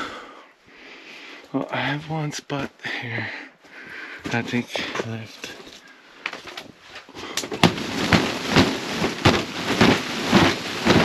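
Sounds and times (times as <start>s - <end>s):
snow thumped off plastic roof: 7.4s - 11.0s
rush of sliding snow: 7.6s - 11.0s.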